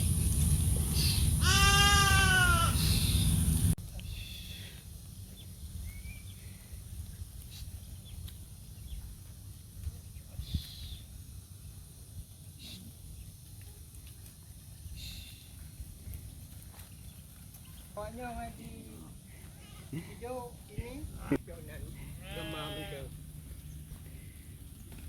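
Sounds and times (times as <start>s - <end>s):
loud low rumbling noise: 0.0s - 3.8s
distant goat bleats: 1.4s - 2.8s, 19.5s - 20.1s, 22.0s - 23.2s
goat bleating: 1.4s - 2.8s, 22.1s - 23.2s.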